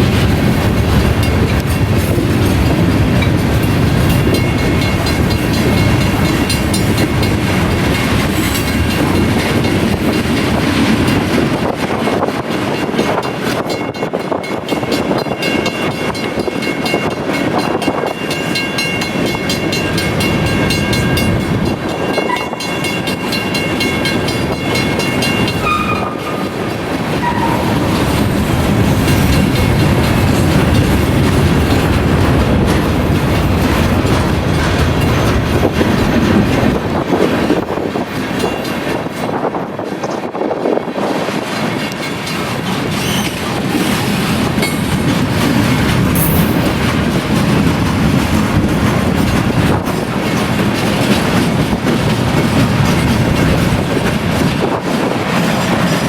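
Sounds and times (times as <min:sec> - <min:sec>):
train wheels clacking over joints: 0:00.0 - 0:56.0
crossing bell ringing: 0:02.6 - 0:10.5, 0:12.7 - 0:31.3, 0:44.6 - 0:46.9
wheel squeals: 0:42.9 - 0:43.5.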